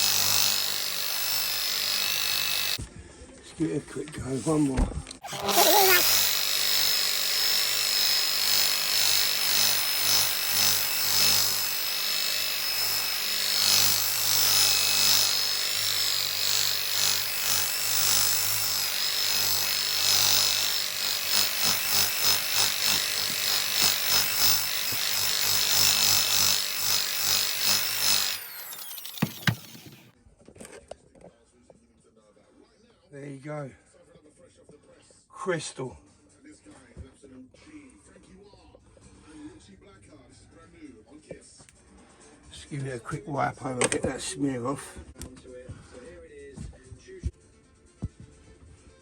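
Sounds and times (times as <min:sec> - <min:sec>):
electric polisher running: 0:00.0 - 0:02.8, 0:05.2 - 0:30.1.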